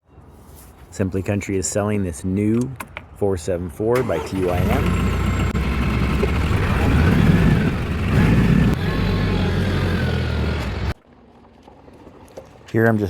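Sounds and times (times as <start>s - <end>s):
tractor diesel engine running: 4.0s - 11.0s.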